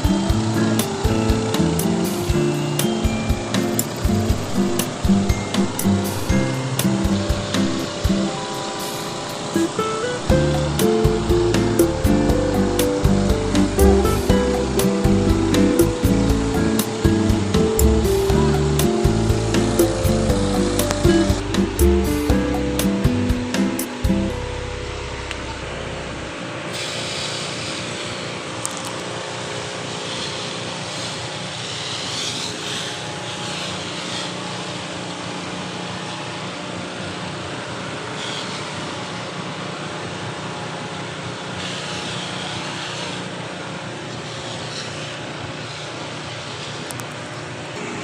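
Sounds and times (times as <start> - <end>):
engine running: 0.0 - 48.0
hiss: 26.7 - 28.4, 29.4 - 34.7.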